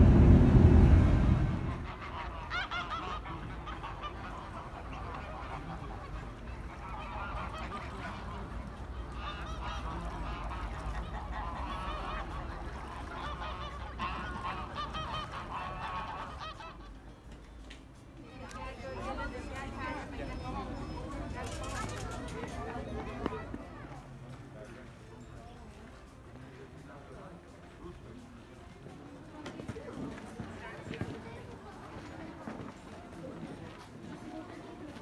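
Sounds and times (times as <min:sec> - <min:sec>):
low steady rumble: 0:00.0 - 0:04.7
birds honking: 0:00.0 - 0:16.9.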